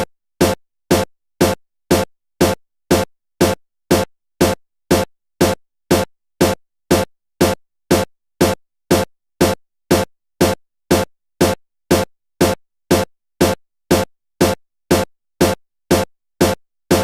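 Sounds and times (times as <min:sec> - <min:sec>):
drum-machine hits: 0:00.0 - 0:17.0.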